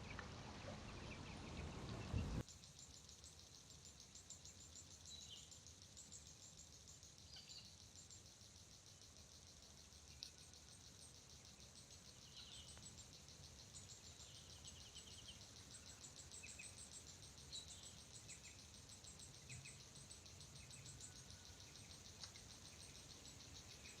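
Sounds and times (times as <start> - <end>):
insects trilling: 2.4 - 24.0.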